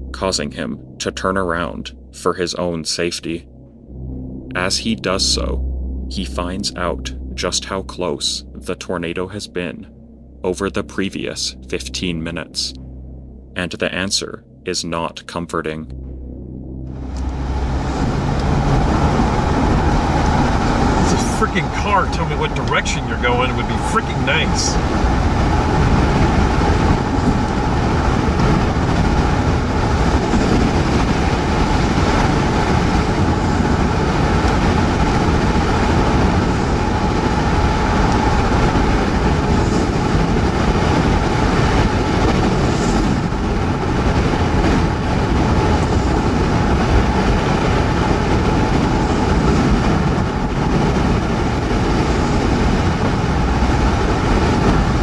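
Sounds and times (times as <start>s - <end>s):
roar of tornado wind: 16.9s - 55.0s
tyre and road noise: 17.0s - 42.5s.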